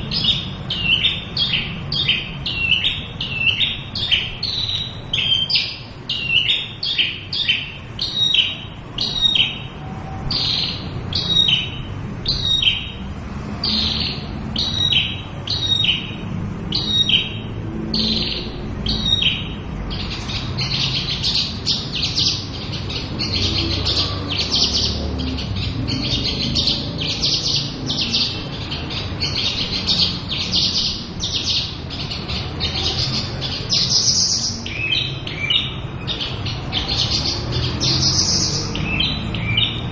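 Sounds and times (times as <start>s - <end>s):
lark singing whistled notes: 0.0s - 13.0s, 13.6s - 39.9s.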